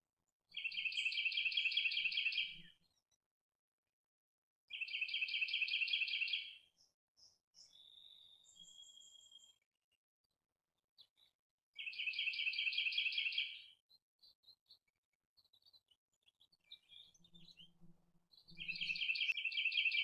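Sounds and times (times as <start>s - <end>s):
songbird trills: 0.6s - 2.7s, 16.7s - 20.0s
short bird chirps: 18.4s - 20.0s.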